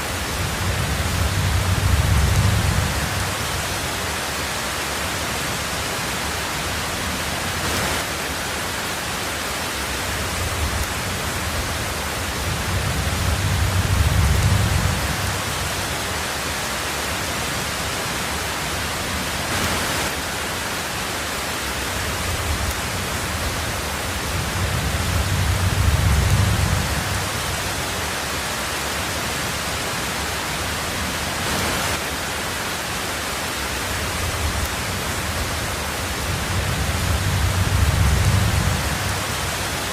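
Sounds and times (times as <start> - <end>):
heavy rain on a tin roof: 0.0 - 39.9
rolling thunder: 0.2 - 3.8, 10.2 - 15.8, 22.2 - 27.6, 34.2 - 39.8.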